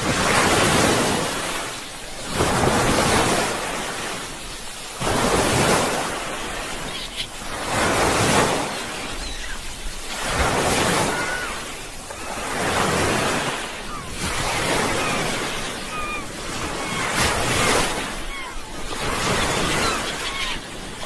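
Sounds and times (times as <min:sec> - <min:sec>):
sea waves breaking on shore: 0:00.0 - 0:21.0.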